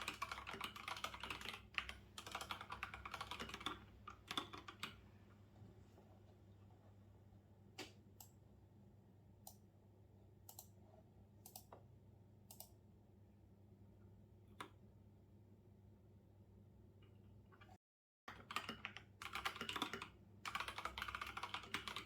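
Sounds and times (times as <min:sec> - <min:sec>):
computer clicks: 0:10.5 - 0:10.8, 0:11.4 - 0:11.8, 0:12.5 - 0:12.8.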